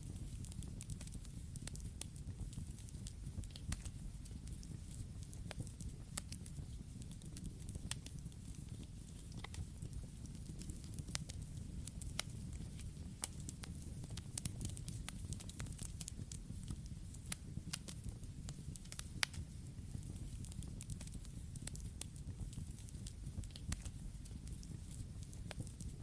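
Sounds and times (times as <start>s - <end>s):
campfire crackling and popping: 0.0s - 26.0s
low rush of flames: 0.0s - 26.0s.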